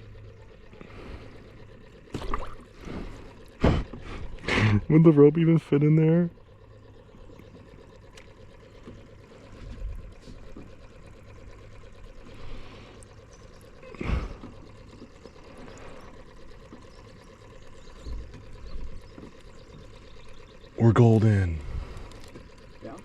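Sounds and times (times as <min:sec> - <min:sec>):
low hum: 0:00.0 - 0:23.0
water trickling and splashing: 0:02.1 - 0:02.9.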